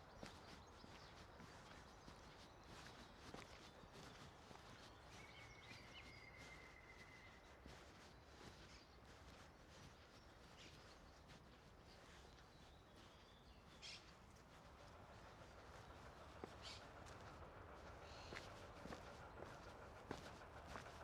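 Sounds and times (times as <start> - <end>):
faint background hum: 12.6 - 21.0.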